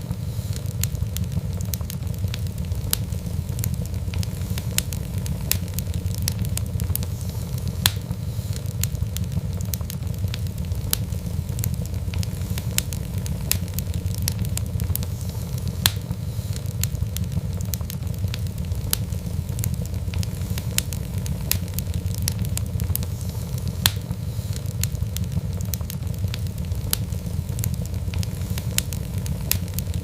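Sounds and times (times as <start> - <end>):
low rumble of flames: 0.0 - 30.0
wood fire crackling: 0.0 - 30.0.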